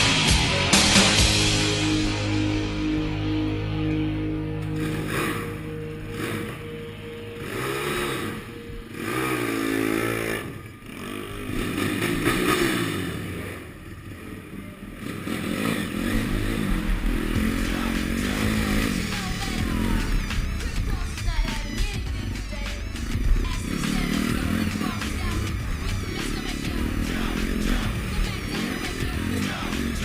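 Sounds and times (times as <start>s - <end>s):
music: 0.0s - 14.0s, 14.6s - 30.0s
motorbike engine revving: 0.0s - 30.0s.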